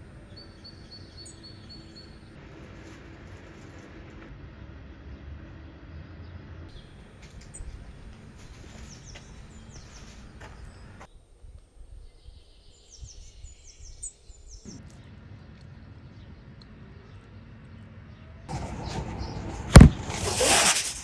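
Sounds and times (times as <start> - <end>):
birds chirping: 6.7 - 11.1, 18.5 - 21.0.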